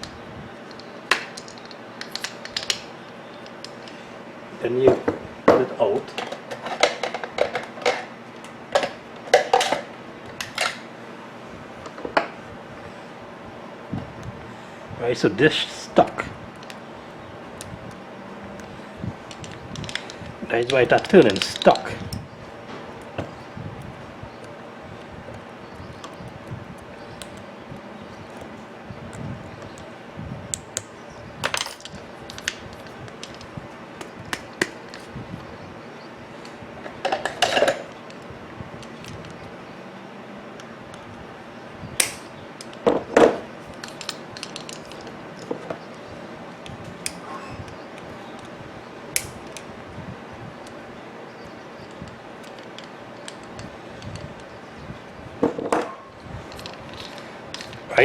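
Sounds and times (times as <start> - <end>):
metallic clicks of small parts: 0.0 - 4.0, 16.6 - 16.8, 18.6 - 22.2, 30.5 - 35.1, 42.0 - 42.8, 43.7 - 46.0, 49.2 - 49.7, 51.8 - 54.5, 56.5 - 57.9
metallic clicks of tools handled: 43.7 - 45.5.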